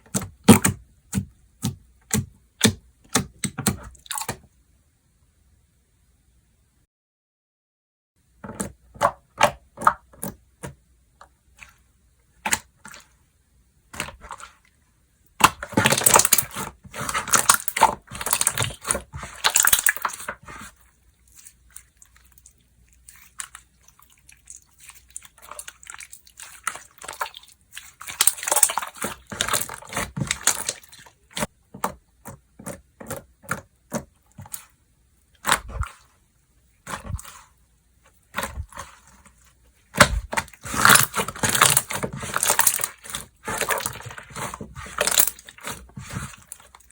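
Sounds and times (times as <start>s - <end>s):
slime crackling and squelching: 15.4s - 31.6s, 32.6s - 34.8s, 35.4s - 36.2s, 36.8s - 46.9s.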